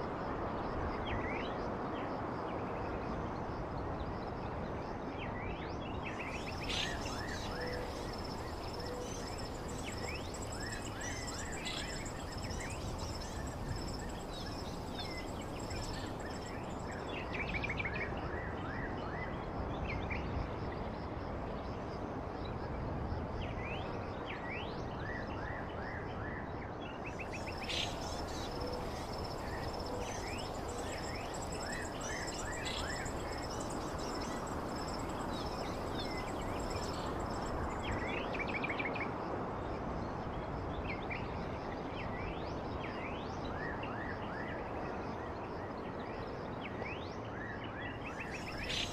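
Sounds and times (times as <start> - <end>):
small birds chirping: 6.1 - 17.5, 27.1 - 38.3, 48.1 - 48.9.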